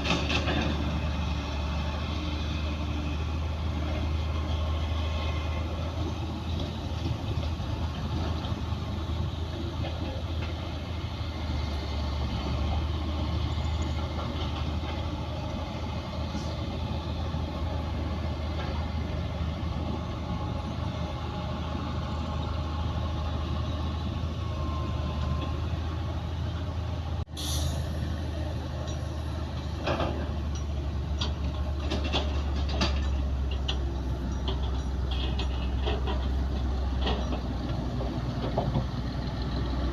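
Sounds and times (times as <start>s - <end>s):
diesel machinery engine drone: 0.0s - 39.9s
metallic knocks and clanks: 29.7s - 38.9s.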